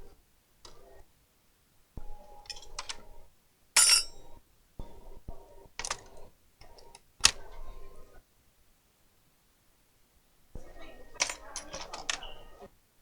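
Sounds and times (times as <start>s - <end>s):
plastic and metal parts rattling: 11.2s - 12.4s.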